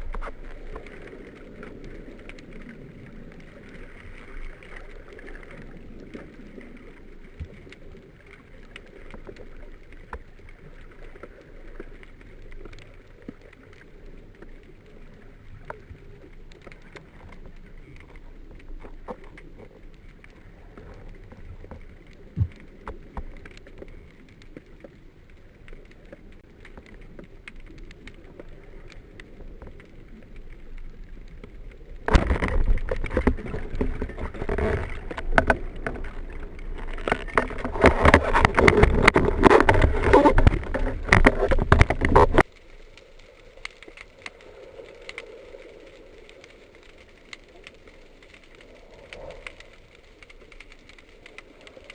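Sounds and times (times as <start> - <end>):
underwater clicks: 0.0 - 51.9
underwater crackling hiss: 42.2 - 51.9.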